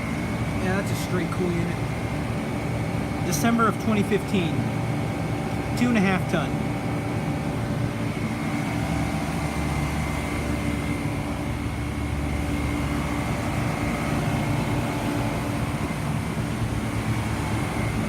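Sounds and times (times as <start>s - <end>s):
compressor hum: 0.0s - 18.0s
fan air noise: 0.0s - 18.0s.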